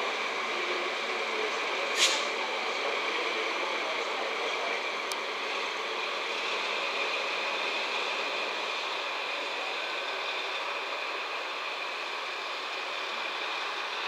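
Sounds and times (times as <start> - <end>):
train rolling slowly past: 0.0 - 14.0
sharp click: 2.0 - 2.3.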